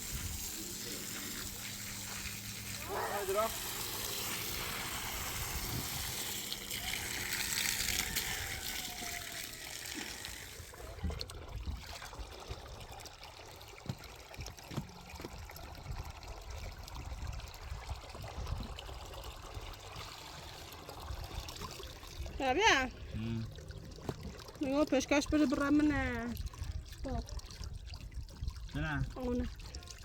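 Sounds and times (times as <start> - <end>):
water running and splashing: 0.0 - 30.0.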